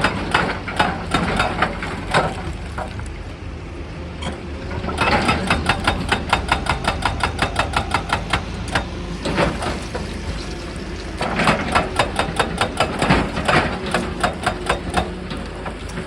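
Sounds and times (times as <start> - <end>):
hydraulic hammer knocking rock: 0.0 - 2.5, 5.0 - 9.8, 11.3 - 15.3.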